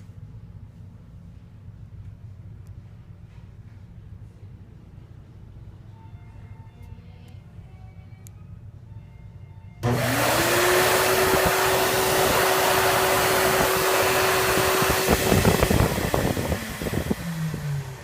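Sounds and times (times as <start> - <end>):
hand dryer motor whine: 9.8 - 18.0.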